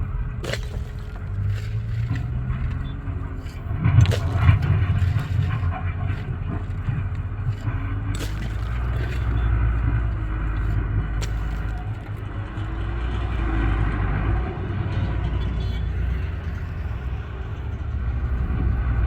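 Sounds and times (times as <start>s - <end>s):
knocks and scrapes: 0.0s - 12.9s
tractor engine running: 0.0s - 19.0s.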